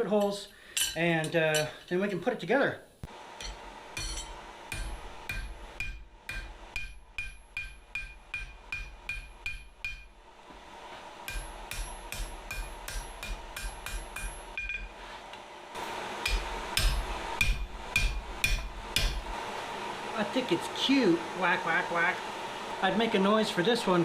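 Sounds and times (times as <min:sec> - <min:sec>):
hammer striking steel on anvil: 0:00.2 - 0:01.8, 0:03.4 - 0:10.2, 0:11.2 - 0:15.0, 0:16.2 - 0:19.3.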